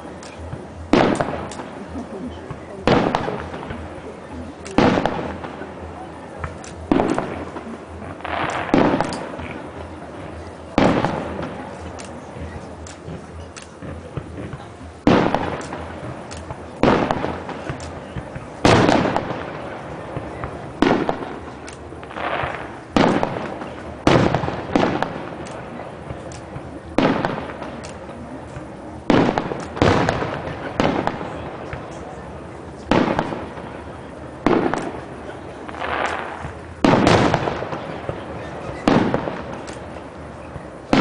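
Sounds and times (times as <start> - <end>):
firework crackles: 0.0 - 41.0
firework shells bursting: 6.4 - 9.6, 34.4 - 41.0.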